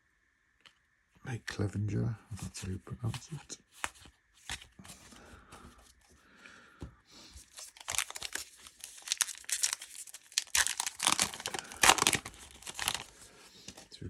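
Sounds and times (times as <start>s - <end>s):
card pack wrapper crinkling: 7.2s - 13.8s.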